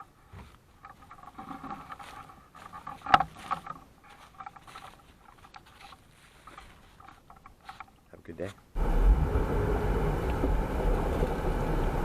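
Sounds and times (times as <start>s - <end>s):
rustling and light crackling: 0.0s - 8.7s.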